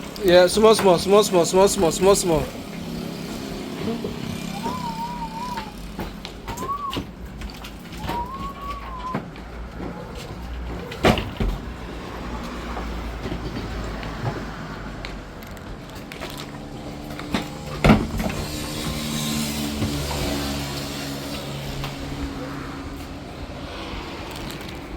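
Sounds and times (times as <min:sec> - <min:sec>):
vehicle engine rumbling: 0:00.0 - 0:24.9
rising and falling whistle: 0:04.4 - 0:05.8, 0:06.5 - 0:07.0, 0:08.0 - 0:09.2.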